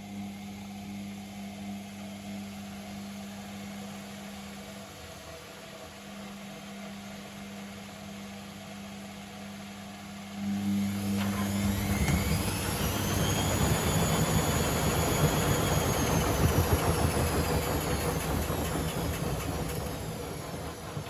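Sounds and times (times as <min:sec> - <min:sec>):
washing machine motor whine: 0:00.0 - 0:21.0
washing machine rushing noise: 0:10.6 - 0:21.0.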